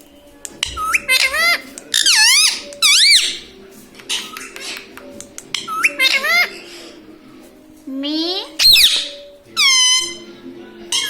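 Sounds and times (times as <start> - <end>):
parrot shrill squeaky calls: 0.8 - 3.5, 5.6 - 6.6, 8.6 - 10.3.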